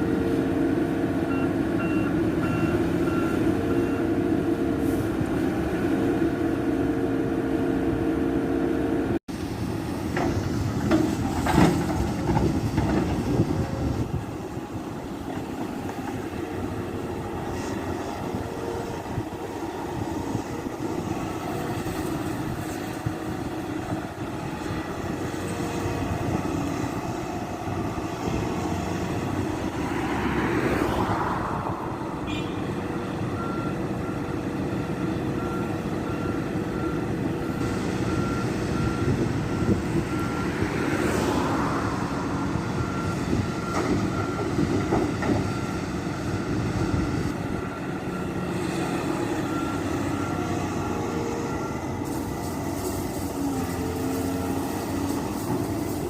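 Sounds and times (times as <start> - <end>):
excavator diesel engine under load: 0.0 - 56.0
reversing alarm beeping: 33.1 - 56.0.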